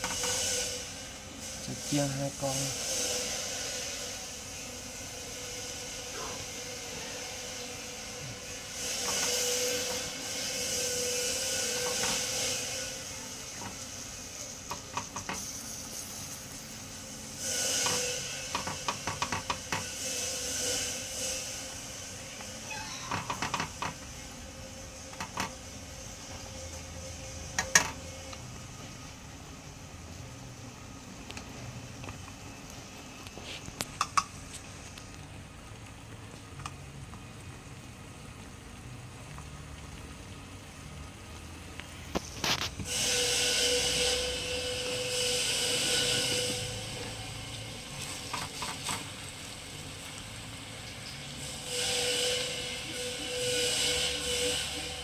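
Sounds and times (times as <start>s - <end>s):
fish sizzling in hot oil: 0.0s - 55.0s
chopsticks tapping a pan: 14.7s - 15.5s, 17.8s - 19.9s.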